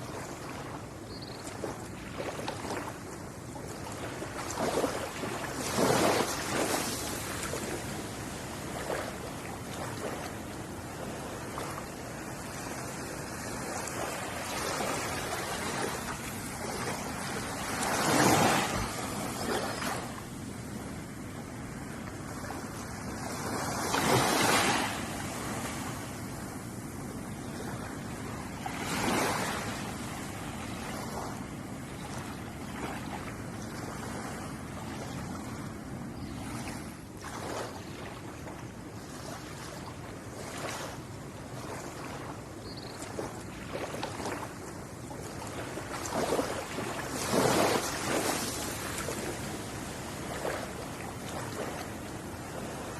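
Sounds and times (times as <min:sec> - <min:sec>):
ocean waves breaking on shore: 0:00.0 - 0:52.9.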